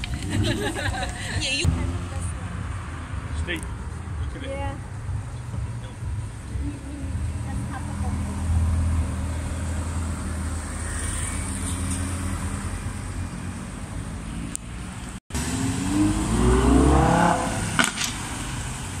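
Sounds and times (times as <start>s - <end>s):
sports car engine rumbling: 0.0s - 19.0s
engine accelerating: 14.0s - 19.0s.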